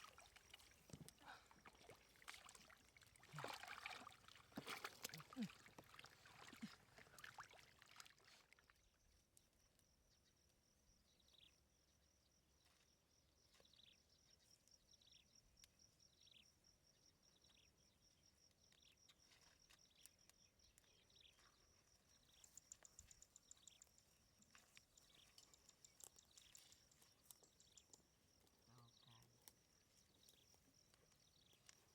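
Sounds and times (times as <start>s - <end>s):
insects trilling: 13.5s - 31.9s.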